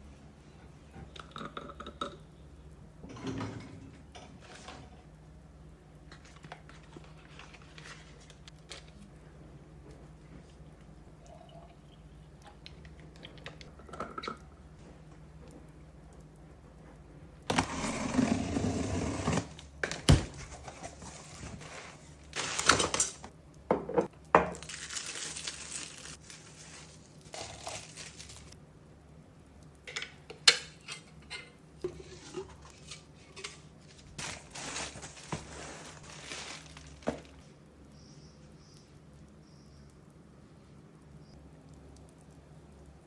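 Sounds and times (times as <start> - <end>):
rustling: 32.1 - 37.5.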